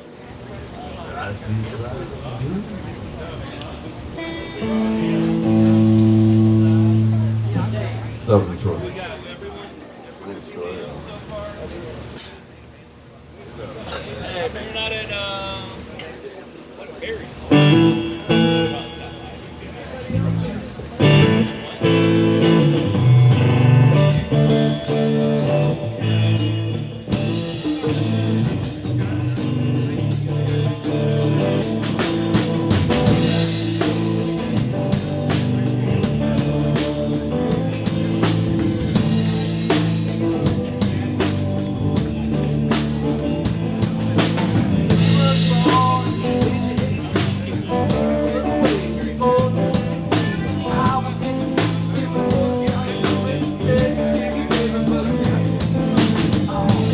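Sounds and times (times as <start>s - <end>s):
live blues band: 0.0s - 9.0s, 17.3s - 56.9s
electric guitar: 2.6s - 9.0s, 17.5s - 56.9s
drum kit beat: 4.2s - 8.3s, 17.5s - 19.2s, 21.0s - 56.9s.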